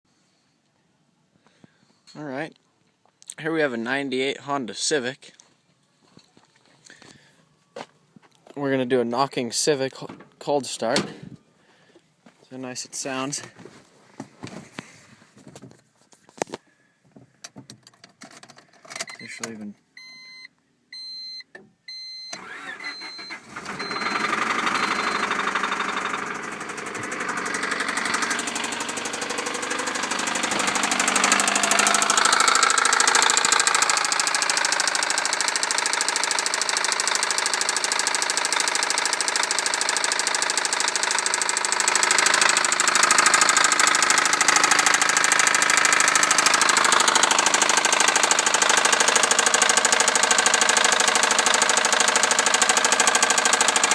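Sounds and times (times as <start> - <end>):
car engine starting and knocking: 22.3 - 53.9.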